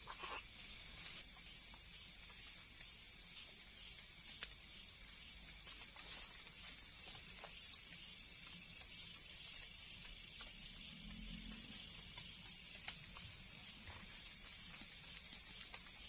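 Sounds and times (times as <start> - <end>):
high-pitched insect hiss: 0.0 - 16.0
small clicks and ticks: 0.1 - 16.0.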